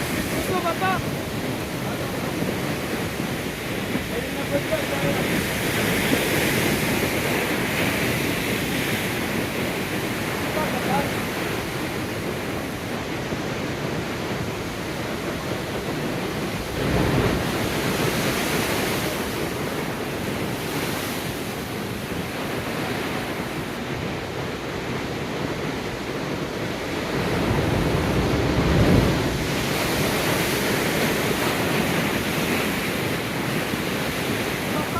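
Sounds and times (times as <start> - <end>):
ocean waves breaking on rocks: 0.0 - 34.9.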